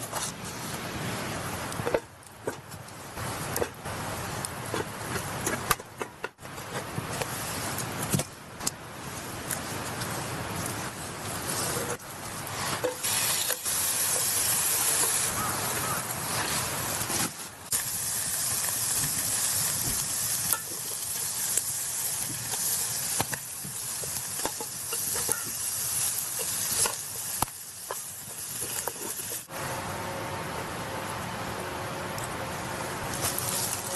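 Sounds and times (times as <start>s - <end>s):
food sizzling in a frying pan: 11.5s - 29.5s, 33.1s - 33.9s.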